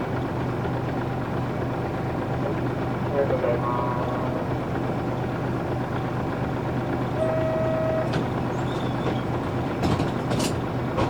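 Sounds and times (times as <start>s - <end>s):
bus diesel engine running: 0.0s - 11.0s
short electronic beep: 7.2s - 8.1s.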